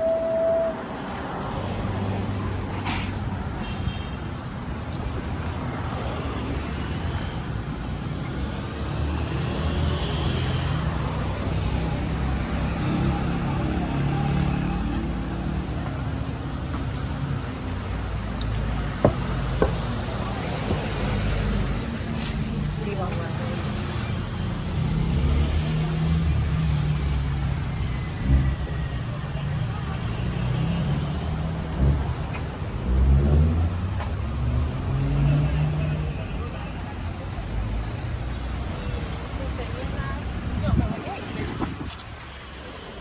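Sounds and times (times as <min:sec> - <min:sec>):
loud single-tone beep: 0:00.0 - 0:00.9
car and bus engines passing: 0:00.0 - 0:43.0
sharp knocks: 0:19.0 - 0:19.9.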